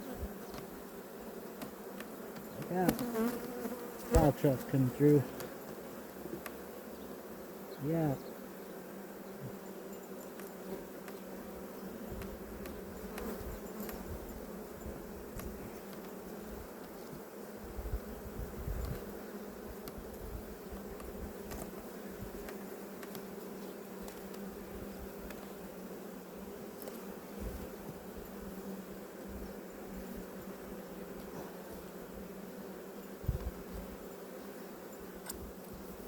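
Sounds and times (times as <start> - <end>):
bees buzzing: 0.0 - 36.0.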